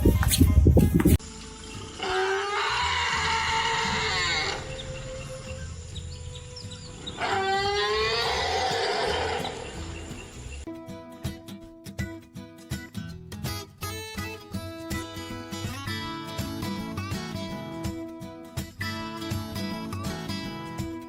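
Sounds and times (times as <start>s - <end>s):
animal calling: 1.6s - 10.3s.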